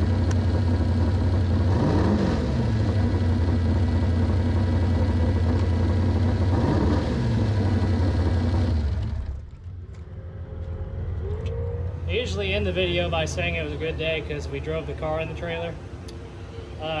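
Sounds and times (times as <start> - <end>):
dragster engine idling: 0.0 - 1.7, 2.6 - 6.5
engine revs: 0.0 - 12.2.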